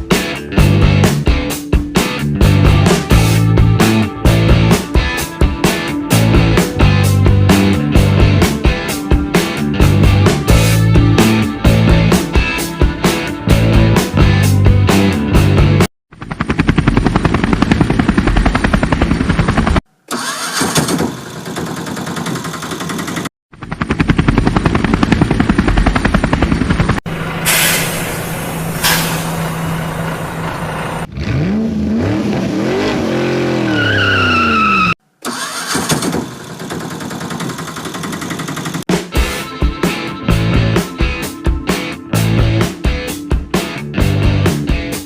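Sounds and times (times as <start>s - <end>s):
engine running: 13.4s - 33.5s, 35.2s - 38.8s
engine revving: 13.5s - 38.8s.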